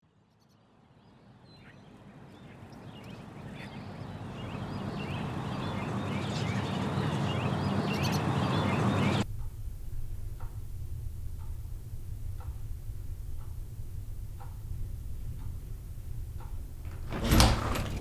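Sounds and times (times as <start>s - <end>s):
birds calling: 3.8s - 18.0s
rushing background noise: 4.3s - 18.0s.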